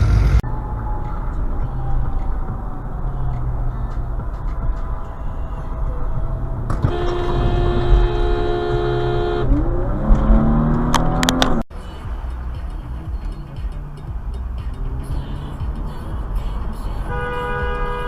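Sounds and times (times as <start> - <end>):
traffic and engine noise: 0.0 - 18.0
car horn held: 6.8 - 9.6.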